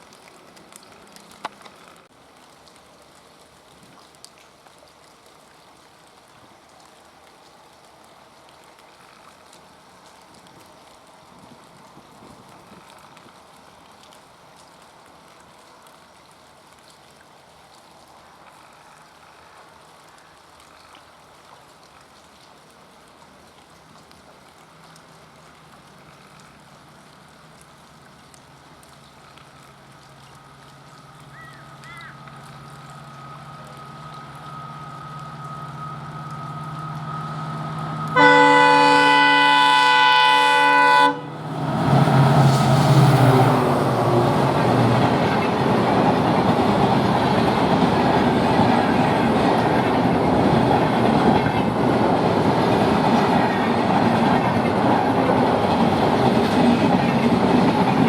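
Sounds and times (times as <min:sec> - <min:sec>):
locomotive running with whine: 0:29.6 - 0:58.0
locomotive horn blast: 0:33.4 - 0:45.0.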